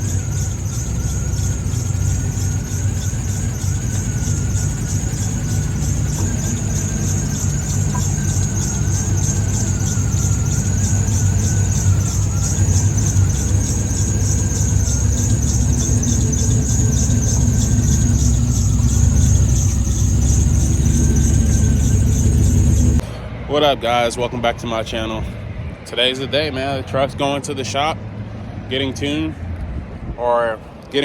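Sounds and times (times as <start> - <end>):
truck engine running: 0.0 - 23.0
high wavering turbo whine: 0.0 - 25.2.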